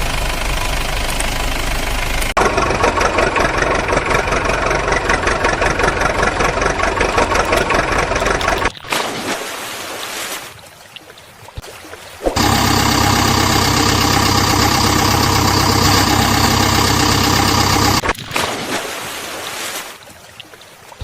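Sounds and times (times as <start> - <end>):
steady low engine: 12.4 - 18.0.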